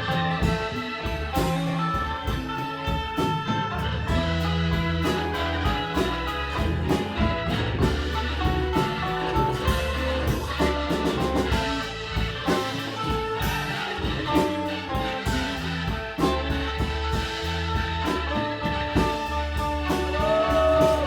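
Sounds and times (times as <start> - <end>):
drum kit beat: 0.0 - 21.0
electric guitar lines: 0.0 - 21.0
rock band playing instrumental: 0.0 - 21.0.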